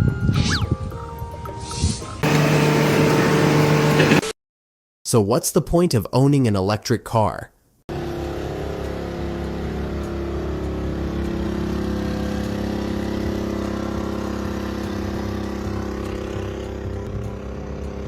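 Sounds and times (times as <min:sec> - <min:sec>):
engine running steadily: 0:02.2 - 0:04.3, 0:07.9 - 0:18.0.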